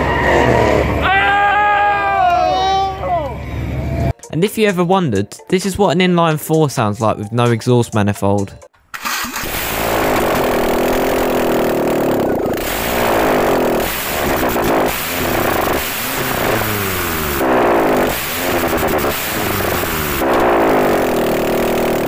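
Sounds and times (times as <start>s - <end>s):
engine revving without exhaust: 9.0s - 22.0s.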